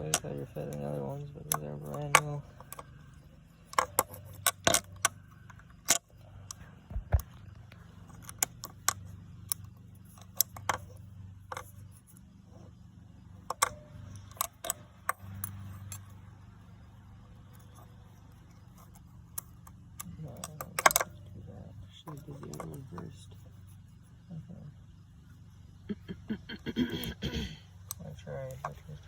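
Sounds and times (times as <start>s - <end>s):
metal parts and tools clinking: 0.0s - 6.6s
low steady hum: 0.0s - 29.0s.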